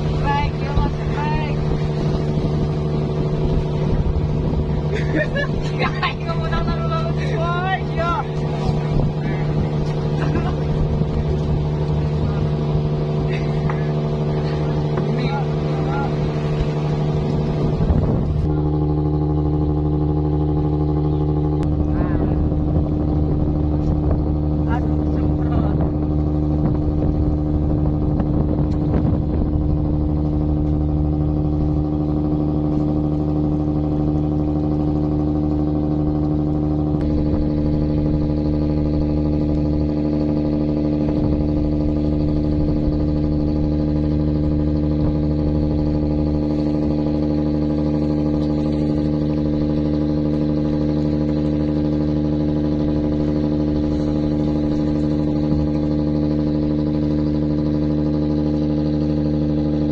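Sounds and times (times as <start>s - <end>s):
boat engine droning: 0.0s - 59.9s.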